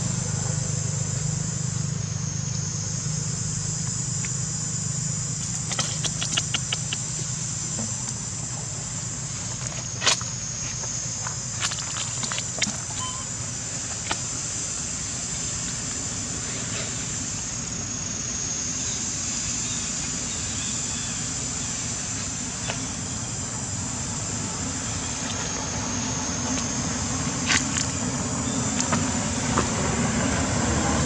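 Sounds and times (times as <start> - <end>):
sharp clicks: 5.6 - 7.1.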